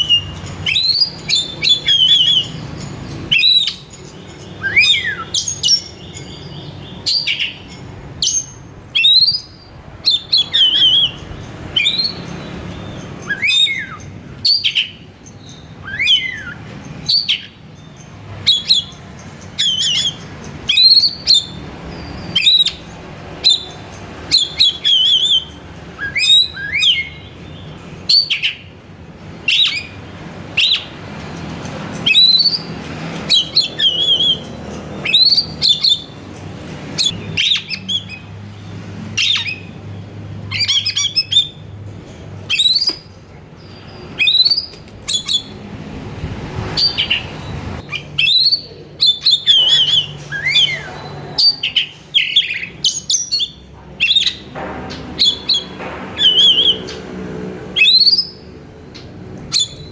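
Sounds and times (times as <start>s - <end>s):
bird singing whistled phrases: 0.0s - 2.6s, 3.3s - 11.2s, 11.8s - 17.6s, 24.3s - 27.3s, 29.5s - 30.0s, 33.3s - 36.1s, 42.5s - 43.0s, 43.7s - 45.5s, 46.8s - 54.4s.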